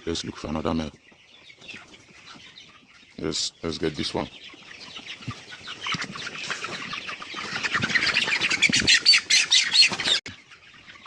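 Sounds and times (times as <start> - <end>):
chicken squawking in alarm: 5.6 - 10.2.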